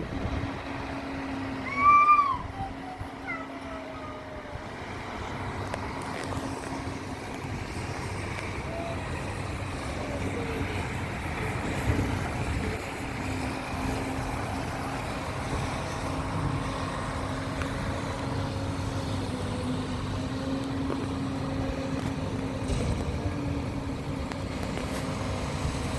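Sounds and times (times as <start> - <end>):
engine hum: 0.0 - 25.9
traffic rumble in rain: 0.0 - 25.9.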